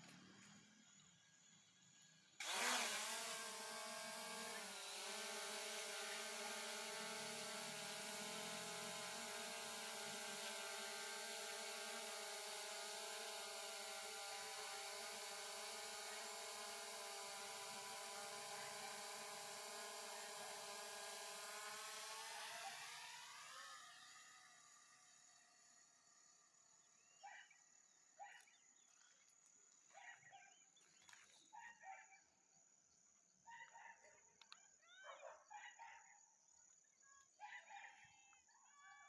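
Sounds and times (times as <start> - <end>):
drone motors whining: 0.0 - 29.0.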